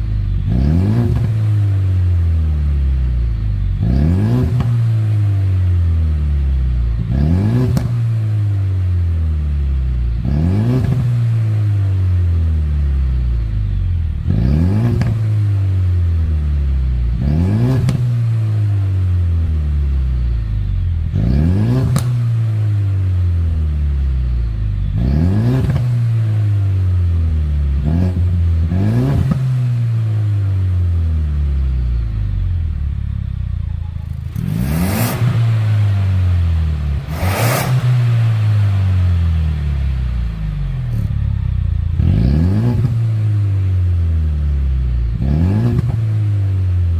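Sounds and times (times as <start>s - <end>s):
car engine revving: 0.0s - 46.9s
exhaust cracks: 6.9s - 8.2s, 14.0s - 15.8s, 21.0s - 22.6s, 32.0s - 44.1s.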